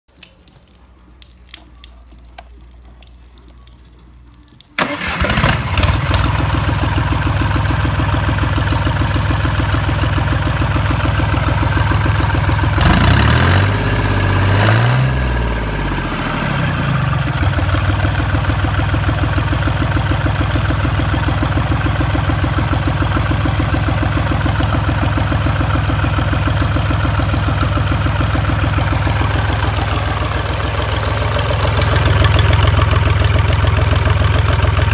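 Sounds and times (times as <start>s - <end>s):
engine revving: 4.8s - 7.2s, 12.1s - 17.2s
marine engine starting and idling: 4.8s - 14.5s, 15.2s - 34.9s.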